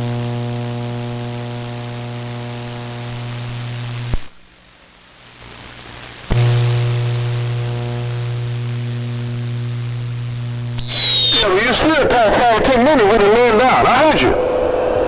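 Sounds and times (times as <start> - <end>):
radio static hiss: 0.0 - 14.7
radio buzzing hum: 0.0 - 15.0
radio clicks: 10.8 - 14.0.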